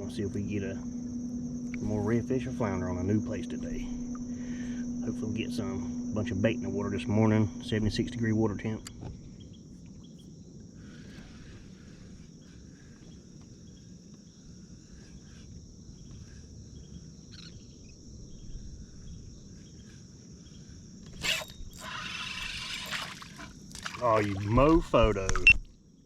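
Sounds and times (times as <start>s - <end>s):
high-pitched insect-like drone: 0.0s - 9.4s, 21.1s - 25.2s
low outdoor rumble: 0.0s - 19.6s.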